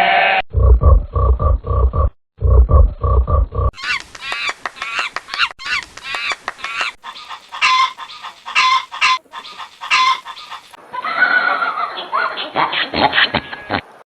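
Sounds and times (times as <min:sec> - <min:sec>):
single bird calls: 0:03.8 - 0:10.8
flock of birds honking: 0:07.0 - 0:10.8.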